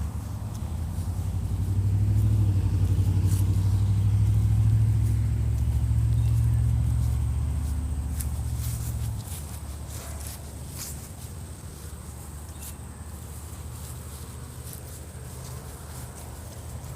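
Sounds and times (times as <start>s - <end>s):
vehicle engine rumbling: 0.0s - 16.9s.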